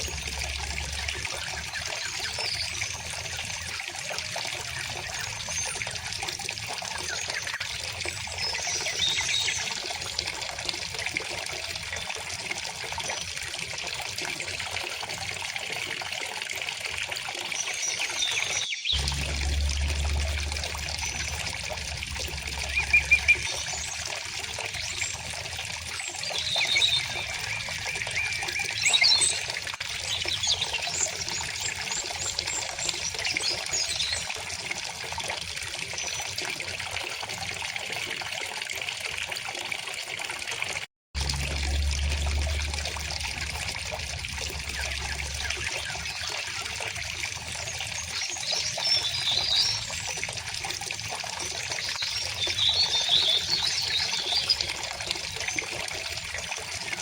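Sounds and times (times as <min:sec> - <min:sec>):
stream water flowing: 0:00.0 - 0:57.0
small birds chirping: 0:17.6 - 0:29.4.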